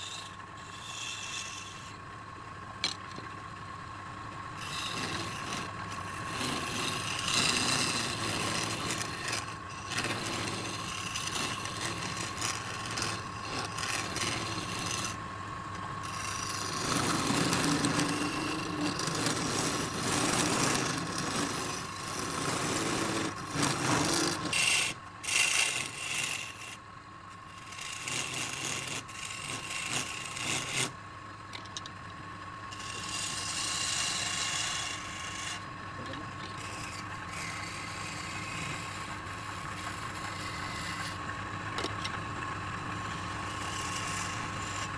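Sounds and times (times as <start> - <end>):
turning tool rasping on wood: 0.0 - 2.0, 4.6 - 15.2, 16.0 - 26.8, 27.4 - 31.0, 32.7 - 42.2, 42.9 - 44.9
wood lathe whine: 0.0 - 44.9.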